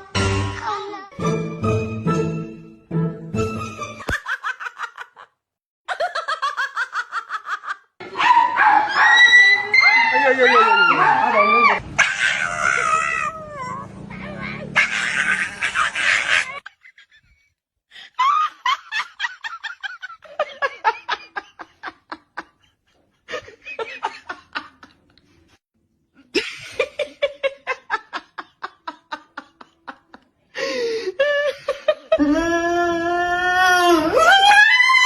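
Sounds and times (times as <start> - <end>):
people laughing hard: 4.0 - 7.9, 14.8 - 17.4, 18.1 - 25.1, 26.3 - 32.2.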